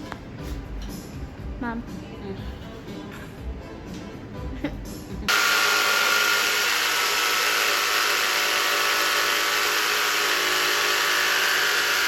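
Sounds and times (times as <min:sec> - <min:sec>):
power saw cutting wood: 0:05.3 - 0:12.0.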